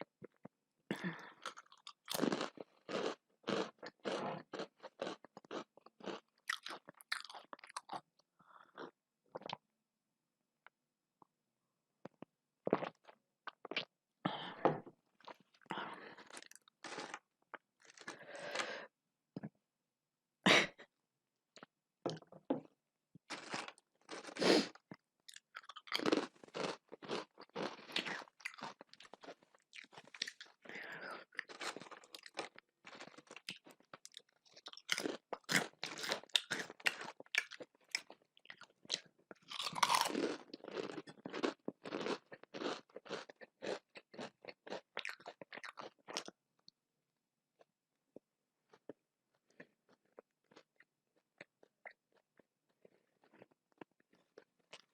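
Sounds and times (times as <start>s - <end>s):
person crunching and chewing: 1.0s - 9.6s, 15.2s - 18.8s, 23.3s - 46.4s, 47.6s - 54.9s.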